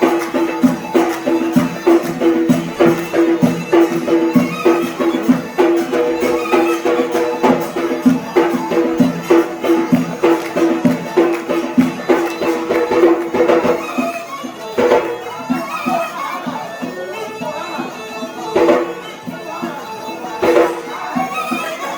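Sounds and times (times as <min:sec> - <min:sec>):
steady drum beat: 0:00.0 - 0:14.0
reed pipe folk melody: 0:00.0 - 0:21.9.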